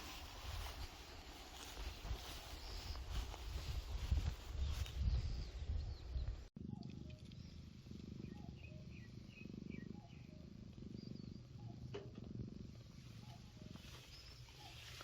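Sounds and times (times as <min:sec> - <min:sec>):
small birds chirping: 0:00.0 - 0:15.0
cat purring: 0:06.7 - 0:14.7.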